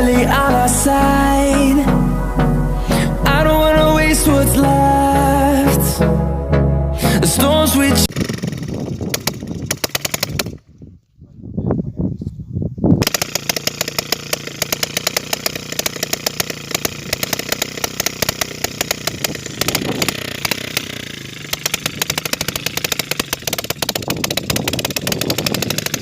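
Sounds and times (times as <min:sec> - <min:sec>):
motorcycle engine running: 0:08.1 - 0:10.6, 0:13.0 - 0:26.0.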